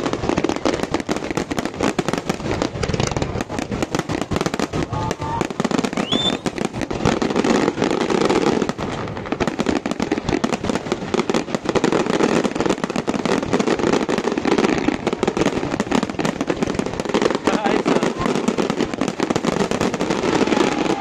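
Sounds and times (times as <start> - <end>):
fireworks crackling and banging: 0.0 - 21.0.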